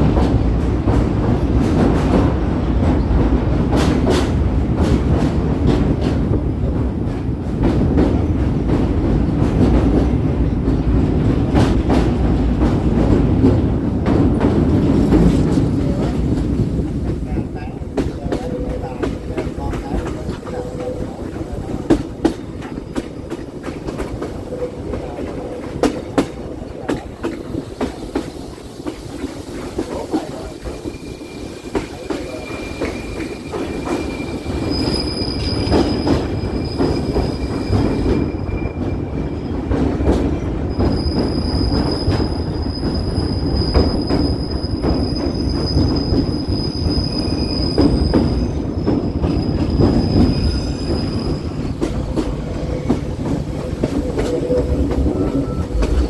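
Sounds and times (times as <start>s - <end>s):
train rumbling on rails: 0.0s - 56.0s
rail-joint clicks: 7.0s - 39.0s, 39.6s - 56.0s
train wheels squealing: 27.6s - 52.0s, 52.6s - 56.0s.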